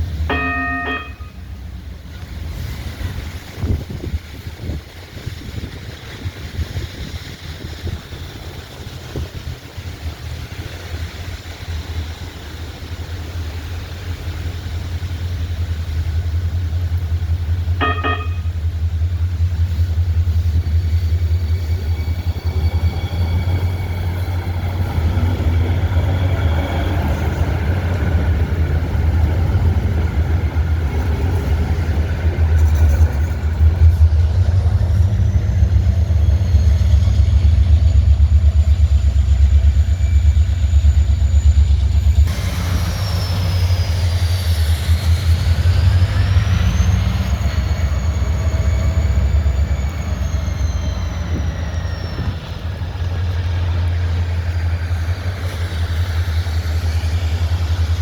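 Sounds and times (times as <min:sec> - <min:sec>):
train rumbling by: 0:00.0 - 0:58.0
high whining tones: 0:21.1 - 0:58.0.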